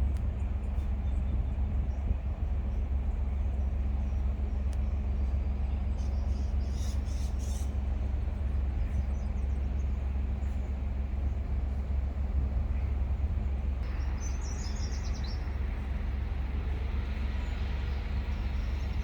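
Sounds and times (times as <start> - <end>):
low rumble of outdoor ambience: 0.0 - 19.0
faint bird chirps: 5.9 - 7.8, 13.8 - 15.9.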